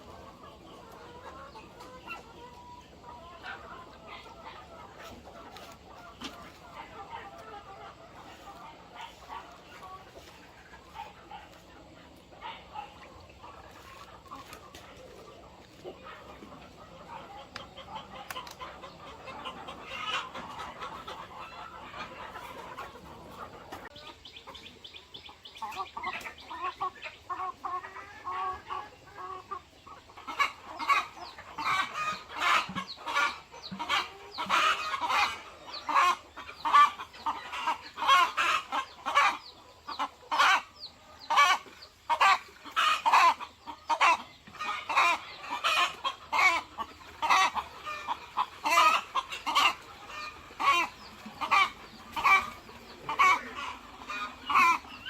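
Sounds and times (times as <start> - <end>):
chickens clucking: 0.0 - 55.0.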